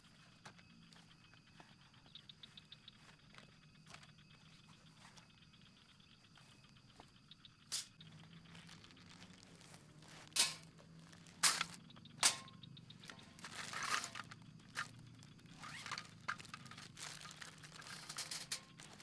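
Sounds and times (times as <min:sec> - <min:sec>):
faint low hum: 0:00.0 - 0:19.0
sharp crunching noises: 0:07.7 - 0:19.0.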